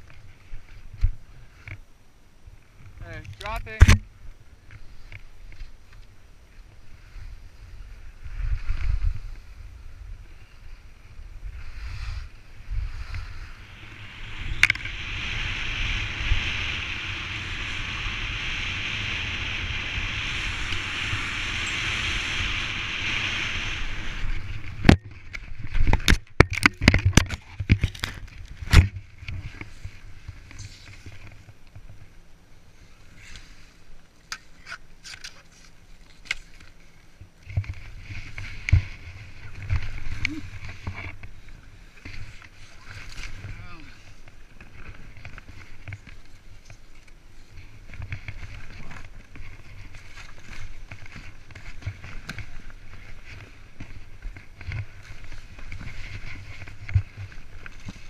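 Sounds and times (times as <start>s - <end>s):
skis hissing over snow: 6.8s - 24.8s, 37.9s - 58.0s.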